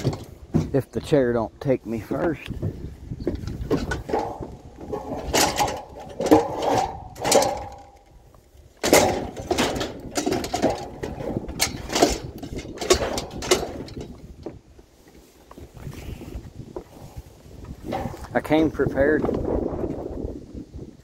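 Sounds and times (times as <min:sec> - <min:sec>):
chair knocking and scraping: 0:02.6 - 0:08.0, 0:08.8 - 0:14.6, 0:17.8 - 0:18.4.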